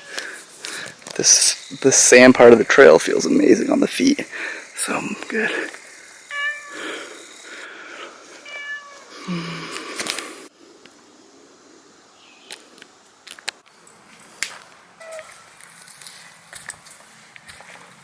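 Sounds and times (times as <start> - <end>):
cat meowing: 8.4 - 9.1.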